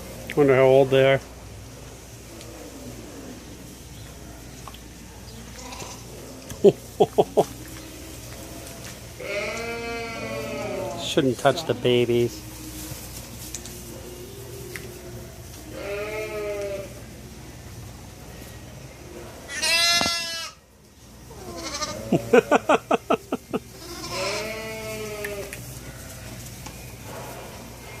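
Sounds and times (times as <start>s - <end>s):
lambs bleating: 9.2s - 11.9s, 15.7s - 17.0s, 19.5s - 20.6s, 21.3s - 22.1s, 23.8s - 26.0s.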